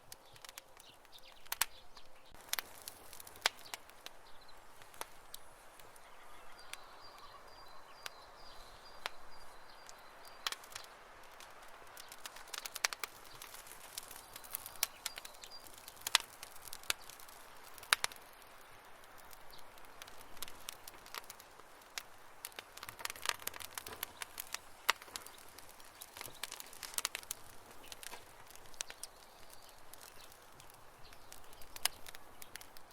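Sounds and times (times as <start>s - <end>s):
campfire crackling: 0.0s - 32.9s
pops and snaps of burning wood: 0.0s - 32.9s
soft hiss of fire: 0.0s - 32.9s.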